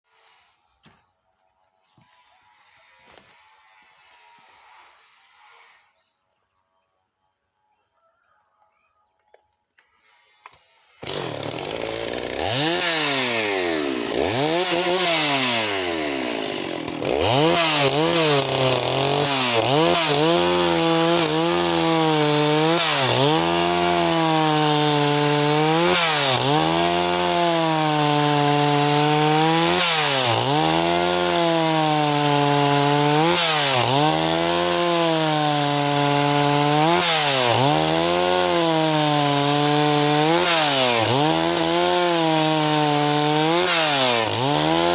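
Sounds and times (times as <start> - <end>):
chainsaw running at high revs: 10.4 - 44.9.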